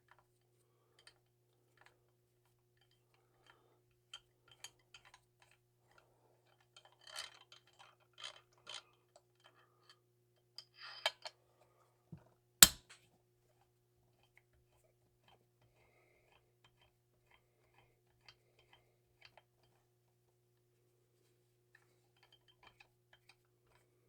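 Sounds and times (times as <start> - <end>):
sharp knock: 12.6 - 12.8.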